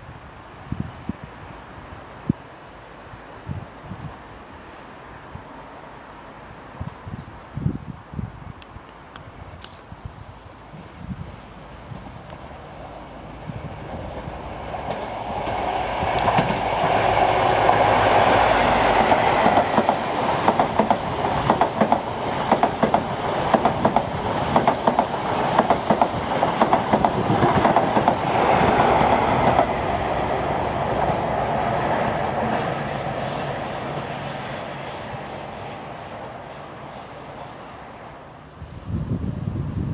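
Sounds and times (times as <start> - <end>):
passenger train passing: 10.2 - 39.9.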